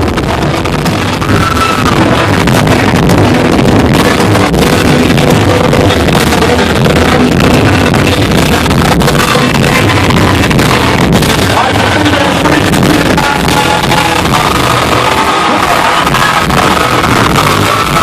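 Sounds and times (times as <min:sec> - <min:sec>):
live rock band with electric guitars: 0:00.0 - 0:18.0.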